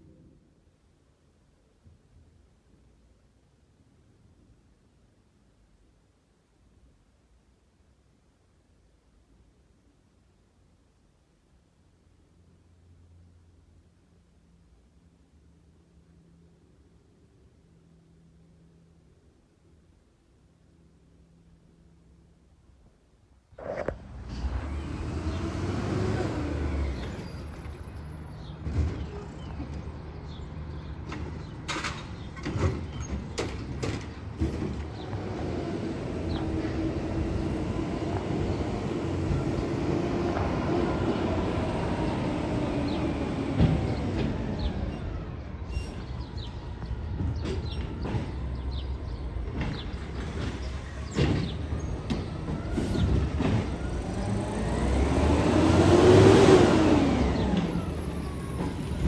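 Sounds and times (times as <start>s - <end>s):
hydraulics whining: 34.6s - 59.0s.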